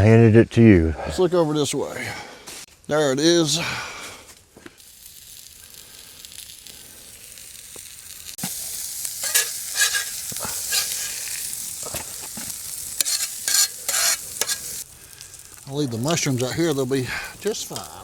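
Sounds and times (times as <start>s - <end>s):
meat and onions sizzling in a pan: 4.7s - 18.0s
spatula scraping and clinking a pan: 9.2s - 14.8s.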